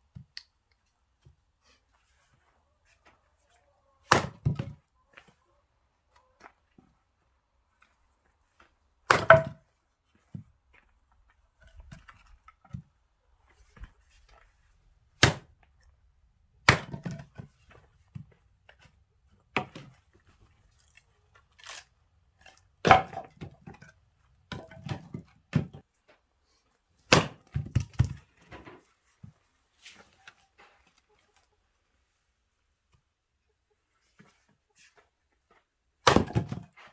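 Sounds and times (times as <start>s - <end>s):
axe chopping firewood: 4.1s - 4.8s, 9.1s - 9.6s, 15.2s - 15.6s, 16.6s - 17.5s, 19.5s - 19.9s, 22.4s - 23.9s, 24.5s - 25.8s, 27.1s - 28.2s, 36.0s - 36.9s.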